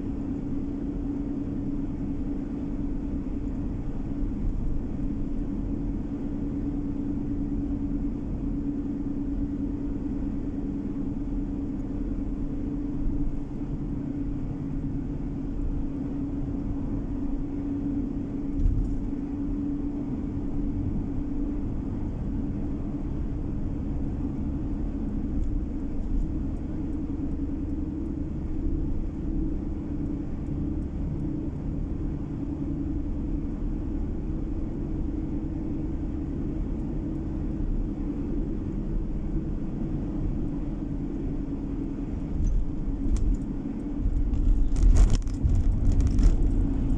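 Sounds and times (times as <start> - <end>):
car engine drone: 9.4 - 46.9
tyre road noise: 13.0 - 21.0, 37.4 - 46.9.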